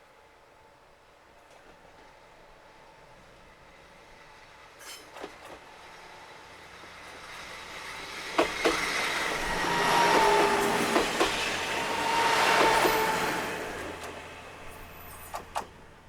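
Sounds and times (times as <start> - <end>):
railcar passing: 0.1 - 16.0
wheels clicking over rail joints: 12.5 - 16.0.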